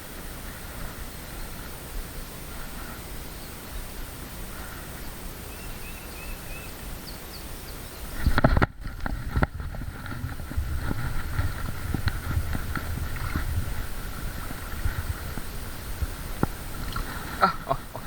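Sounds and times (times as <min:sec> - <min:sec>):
low rumble: 0:08.8 - 0:18.0.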